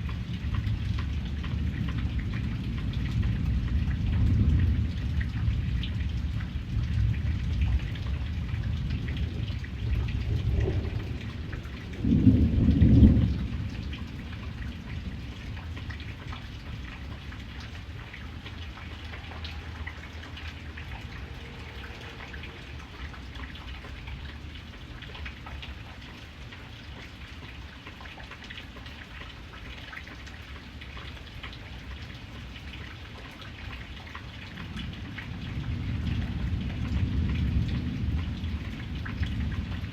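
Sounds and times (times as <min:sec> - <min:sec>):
steady rain: 0:00.0 - 0:39.9
thunder rumbling: 0:00.3 - 0:25.1, 0:34.8 - 0:39.9.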